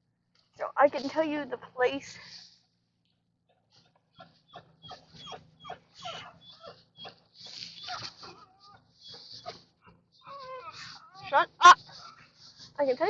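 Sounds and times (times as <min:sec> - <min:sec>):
dog whining: 0:03.6 - 0:13.0.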